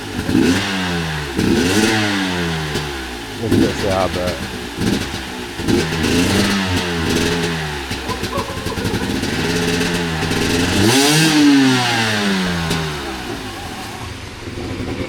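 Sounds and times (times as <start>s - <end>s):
dirt bike engine revving: 0.0s - 14.8s.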